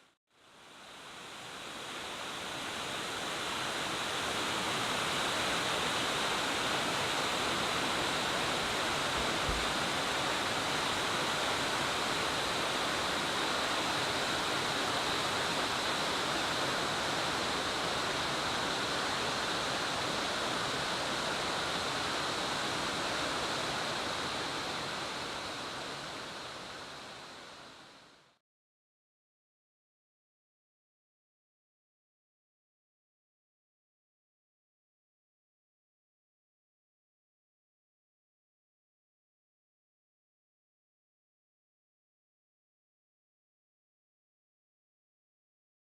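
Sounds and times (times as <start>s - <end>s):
waterfall rushing: 0.9s - 28.2s.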